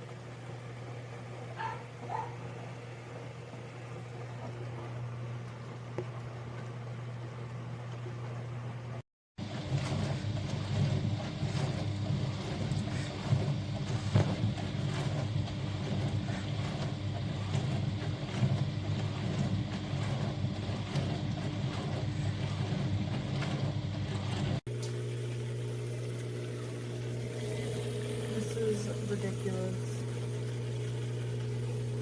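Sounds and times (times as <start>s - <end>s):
dishwasher pump motor hum: 0.0s - 32.0s
water spraying inside dishwasher: 9.4s - 32.0s.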